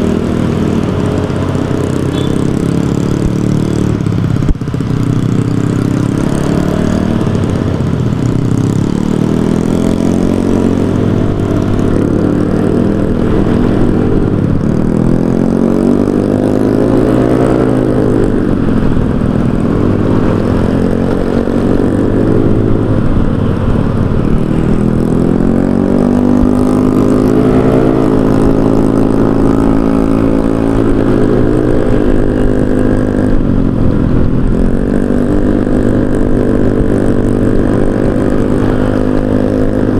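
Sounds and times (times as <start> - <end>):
scooter engine revving: 0.0 - 39.9.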